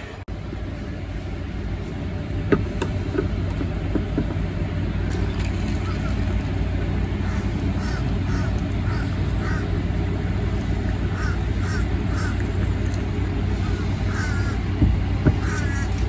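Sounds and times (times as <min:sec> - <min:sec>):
low rumble and hum: 0:00.0 - 0:16.0
birds calling: 0:05.1 - 0:16.0.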